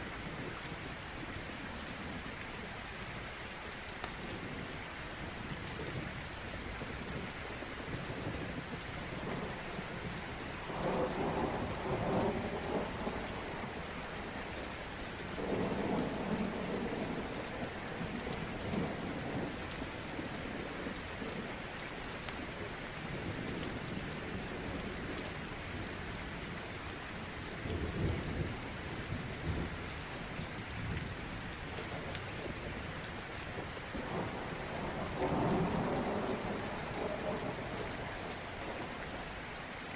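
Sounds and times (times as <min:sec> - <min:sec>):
steady rain hiss: 0:00.0 - 0:39.9
rumbles of thunder: 0:08.0 - 0:21.5, 0:27.1 - 0:39.2.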